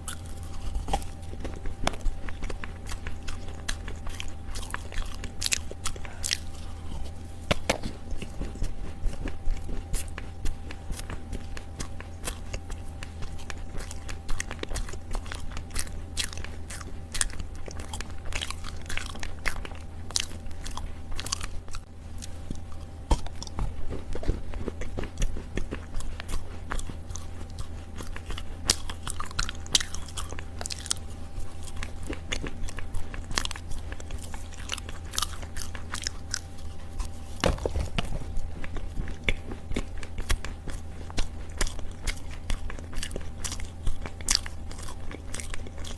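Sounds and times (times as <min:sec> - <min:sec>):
person chewing crunchy soil: 0:00.0 - 0:45.9.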